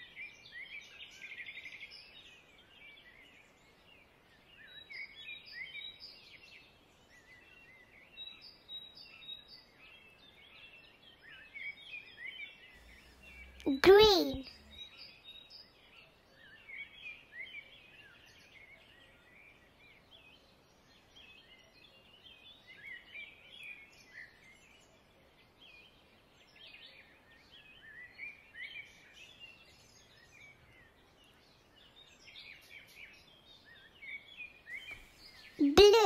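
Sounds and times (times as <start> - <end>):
faint birds chirping: 0.0 - 36.0.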